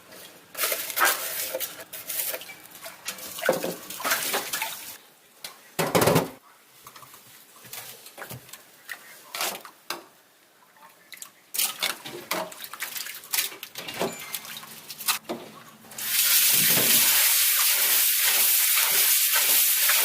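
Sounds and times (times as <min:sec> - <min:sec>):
water splashing from a tap: 0:03.1 - 0:05.0, 0:16.0 - 0:20.0
loud steady rushing hiss: 0:16.0 - 0:20.0.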